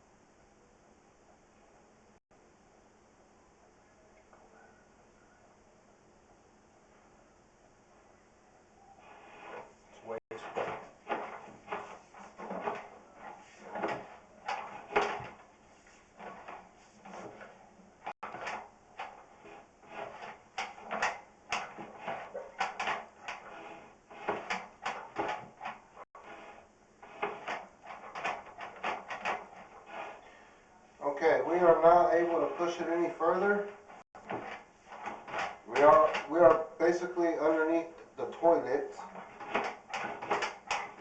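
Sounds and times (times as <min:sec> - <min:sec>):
cable rubbing and knocking in pipe: 0:09.0 - 0:30.4, 0:31.4 - 0:37.6, 0:38.2 - 0:41.0.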